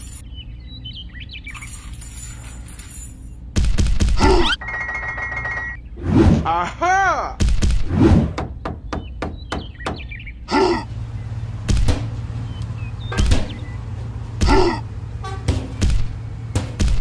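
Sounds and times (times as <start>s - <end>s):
low engine drone: 10.2s - 17.0s
strained grunts: 10.5s - 10.9s, 14.4s - 14.9s
sharp knocks: 11.6s - 12.3s, 13.1s - 13.7s, 14.3s - 17.0s.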